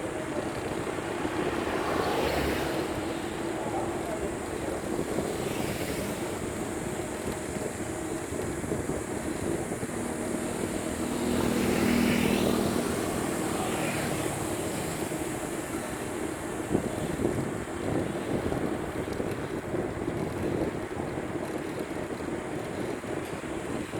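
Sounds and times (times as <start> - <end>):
wind and road noise: 0.0 - 23.9
motor engine passing by: 0.4 - 18.0.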